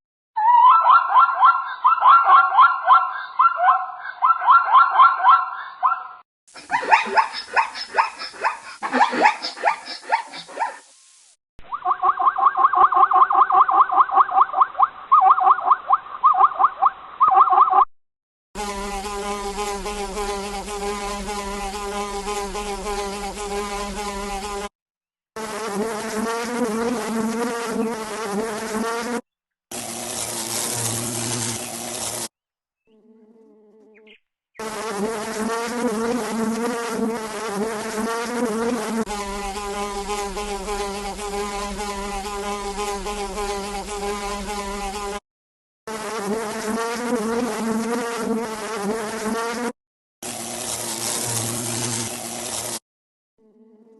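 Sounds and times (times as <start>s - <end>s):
insect wingbeat buzz: 6.5s - 11.4s, 18.6s - 24.7s, 25.4s - 32.3s, 32.9s - 45.2s, 45.9s - 52.8s.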